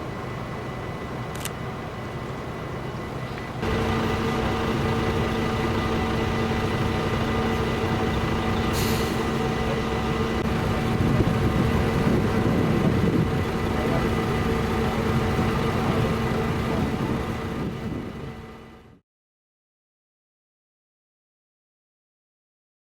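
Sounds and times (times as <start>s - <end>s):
heavy vehicle engine running: 0.0s - 19.0s
air hiss: 8.7s - 9.3s.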